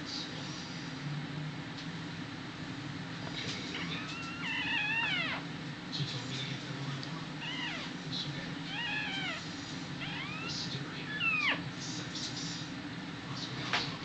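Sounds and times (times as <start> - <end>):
puppies crying: 3.8 - 5.5, 7.4 - 8.0, 8.7 - 11.7.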